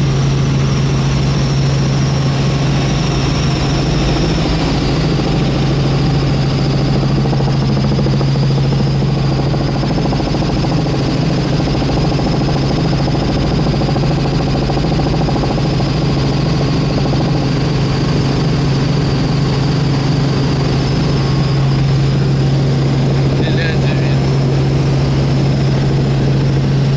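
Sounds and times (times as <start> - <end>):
helicopter engine and rotor drone: 0.0 - 26.9.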